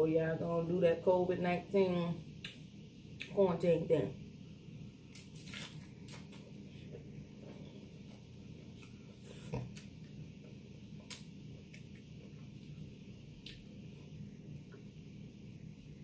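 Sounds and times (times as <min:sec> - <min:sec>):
person chewing a taco: 0:05.0 - 0:13.8.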